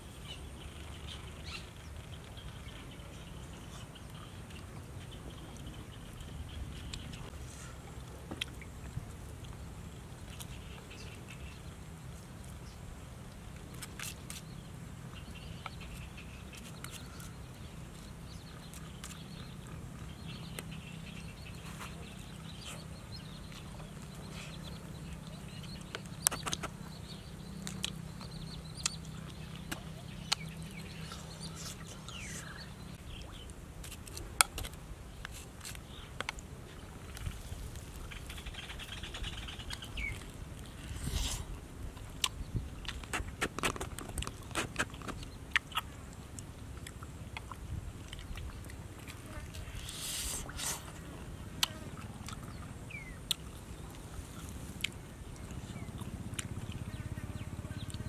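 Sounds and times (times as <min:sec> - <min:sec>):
steady low hum: 0:00.0 - 0:58.0
faint bird chirps: 0:14.4 - 0:33.5.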